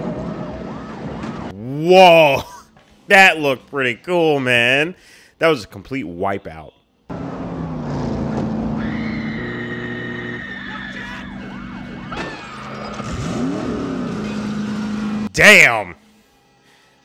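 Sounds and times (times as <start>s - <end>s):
car engines revving hard: 11.4s - 15.3s.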